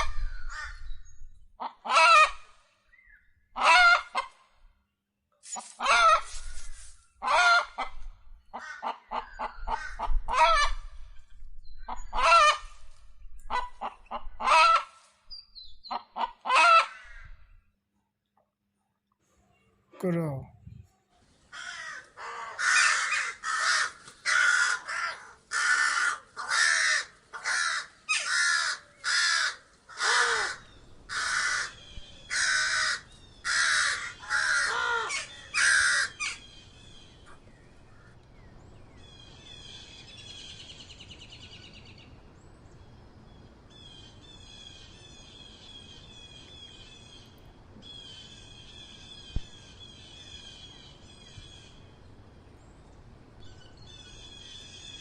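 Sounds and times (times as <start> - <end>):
crow cawing: 1.7 - 2.5, 16.2 - 17.4, 21.5 - 36.4
high trilling bird calls: 2.9 - 3.5.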